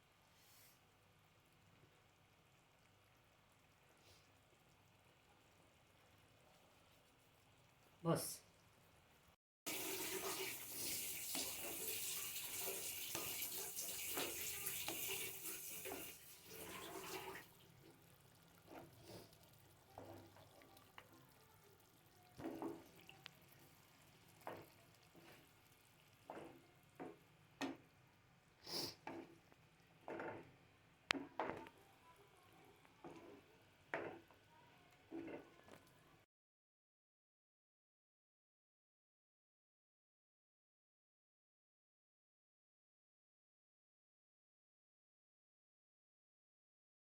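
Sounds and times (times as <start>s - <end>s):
water running from a tap: 9.7s - 27.9s.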